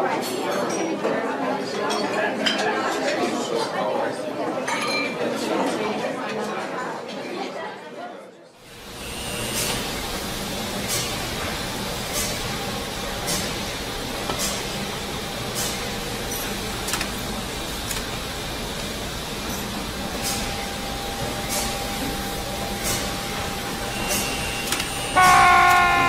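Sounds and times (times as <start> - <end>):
loud tone falling in pitch: 25.2 - 26.0.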